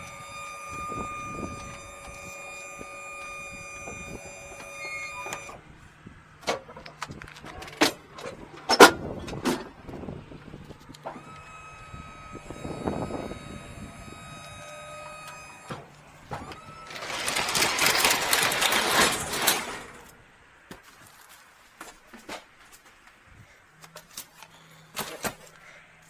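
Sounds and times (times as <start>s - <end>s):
hydraulic pump motor whine: 0.0s - 20.3s
rough rattling noise: 15.8s - 20.3s.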